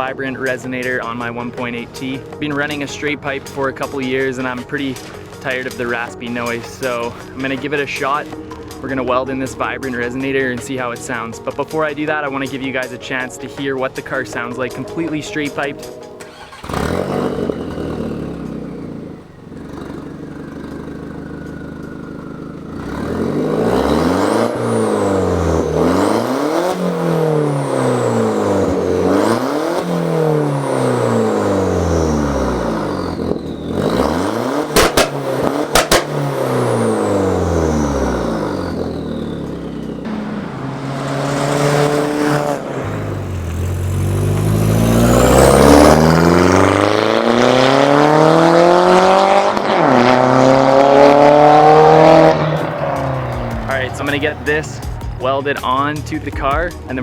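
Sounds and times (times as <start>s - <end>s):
exhaust cracks: 0.0s - 13.2s, 13.8s - 57.0s
raspy car engine revving: 15.8s - 57.0s.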